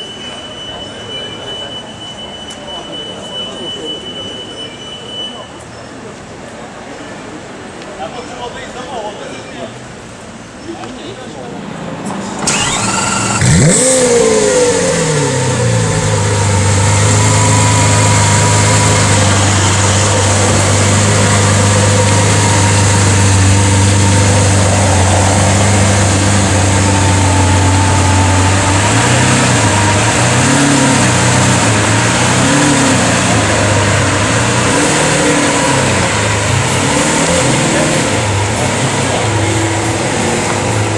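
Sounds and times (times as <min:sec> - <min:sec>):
sports car engine idling and revving: 0:11.6 - 0:40.9.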